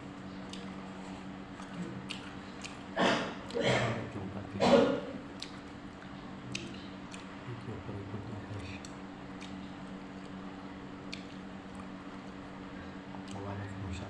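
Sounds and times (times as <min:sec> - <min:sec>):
quiet chewing: 0:00.0 - 0:14.0.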